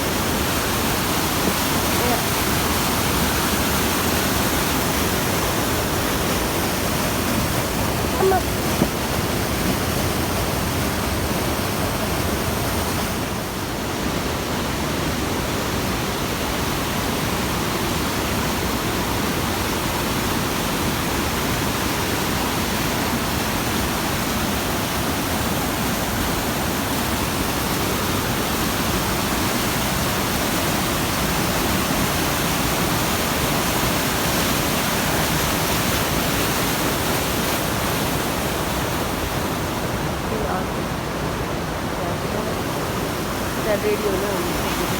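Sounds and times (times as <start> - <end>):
waterfall and stream rushing: 0.0 - 44.9.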